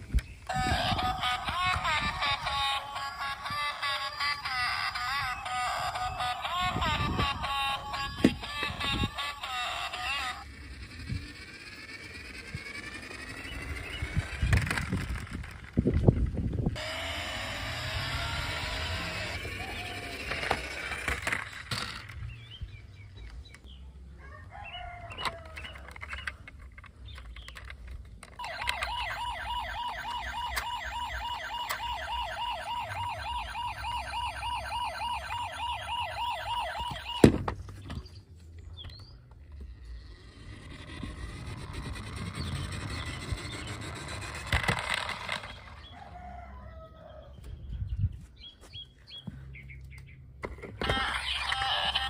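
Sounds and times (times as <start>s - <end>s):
toy car electronic siren: 0.5s - 15.8s, 16.8s - 22.0s, 24.8s - 26.3s, 27.5s - 37.5s, 39.6s - 46.9s, 50.8s - 52.0s.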